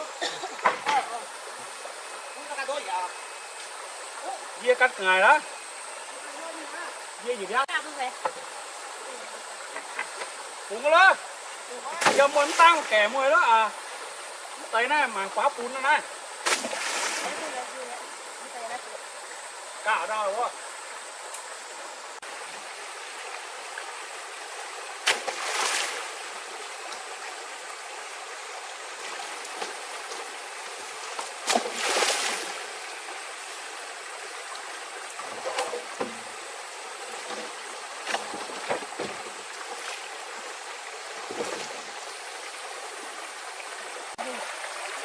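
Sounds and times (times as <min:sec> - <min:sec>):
running water: 0:00.0 - 0:45.0
short splashes or knocks: 0:11.9 - 0:13.1, 0:16.4 - 0:17.6, 0:25.0 - 0:26.1, 0:31.0 - 0:32.6, 0:37.2 - 0:40.0, 0:41.2 - 0:41.8.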